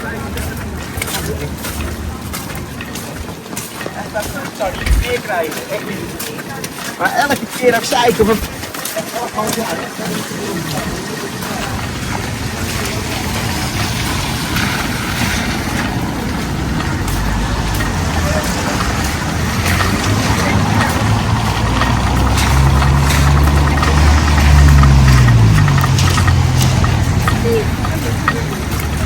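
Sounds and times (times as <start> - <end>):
vehicle engine passing by: 11.3 - 29.0.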